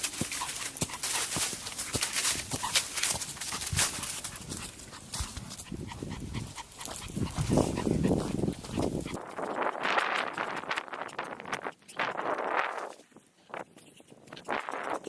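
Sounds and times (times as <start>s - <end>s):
small dog vocalising: 4.3s - 9.2s.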